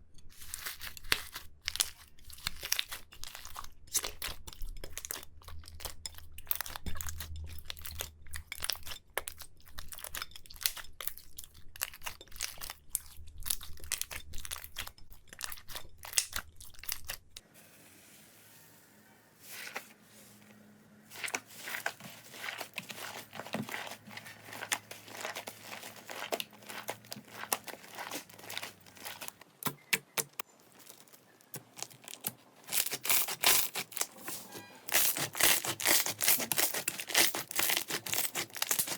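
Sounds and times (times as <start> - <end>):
slime crackling and popping: 21.2 - 34.1, 34.9 - 38.9.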